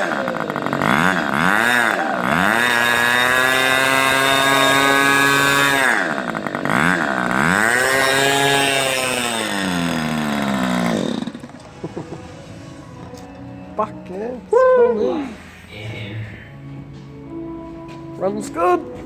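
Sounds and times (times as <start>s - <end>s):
two-stroke engine revving: 0.0s - 13.8s.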